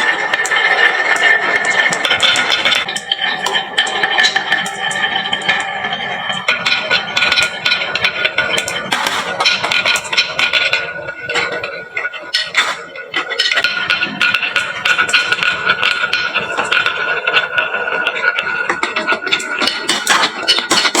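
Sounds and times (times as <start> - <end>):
marbles rolling down wooden run: 0.0 - 10.8, 12.3 - 17.5.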